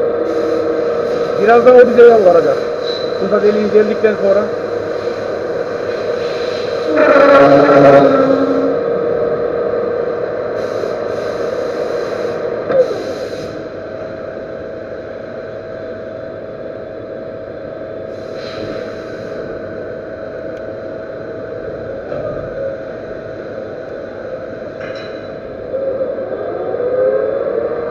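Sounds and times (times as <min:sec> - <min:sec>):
hiss: 0:00.2 - 0:01.7, 0:04.6 - 0:07.1, 0:10.5 - 0:13.7, 0:18.1 - 0:19.6.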